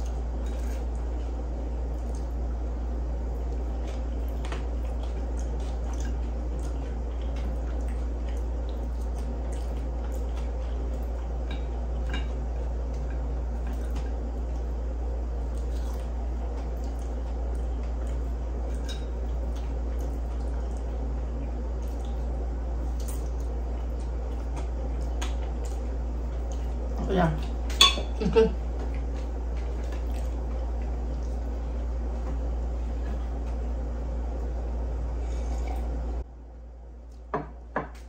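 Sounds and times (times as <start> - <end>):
steady low hum: 0.0 - 38.0
wet chewing and mouth smacks: 15.4 - 27.7.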